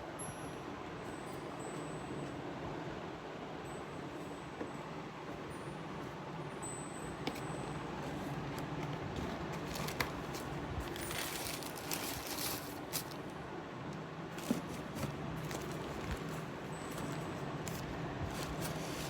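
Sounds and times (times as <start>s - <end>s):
box and wrapping handled: 8.0s - 13.4s, 14.3s - 19.0s.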